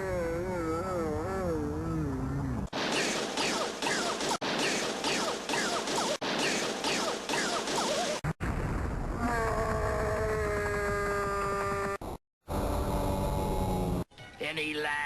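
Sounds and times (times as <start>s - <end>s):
cartoon crash and explosion effect: 2.7s - 10.1s.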